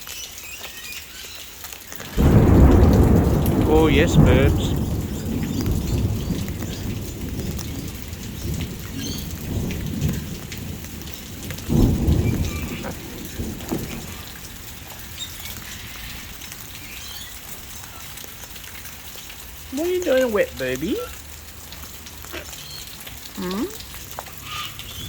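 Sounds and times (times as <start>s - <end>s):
steady rain: 0.0s - 25.0s
thunder rumbling: 2.1s - 21.2s.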